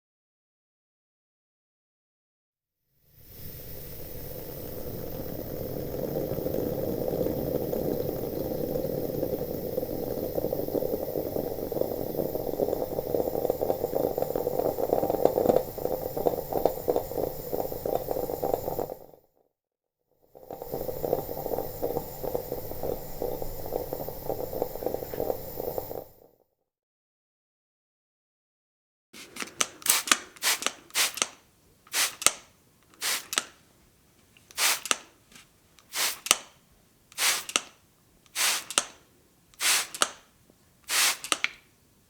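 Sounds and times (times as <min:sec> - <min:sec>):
liquid bubbling in a pot: 0:03.1 - 0:19.2, 0:20.2 - 0:26.3.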